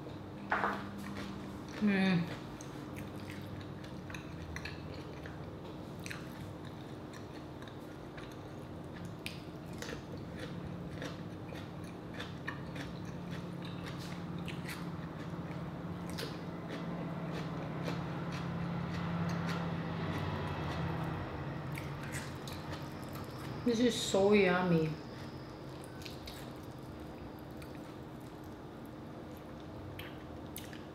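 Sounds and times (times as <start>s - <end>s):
steady low hum: 0.0s - 30.9s
crunchy chewing: 0.9s - 23.6s, 25.0s - 30.9s.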